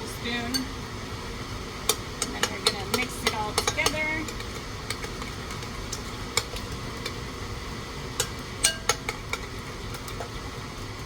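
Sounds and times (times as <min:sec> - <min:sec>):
spoon clinking against bowl: 0:08.2 - 0:09.2.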